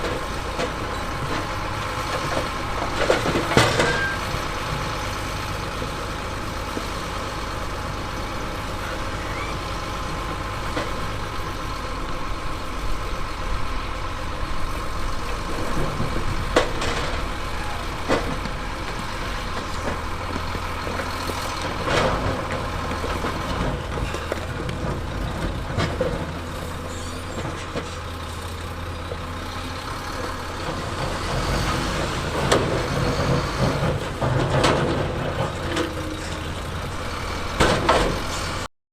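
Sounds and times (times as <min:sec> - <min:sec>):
heavy diesel machinery running: 0:00.0 - 0:38.7.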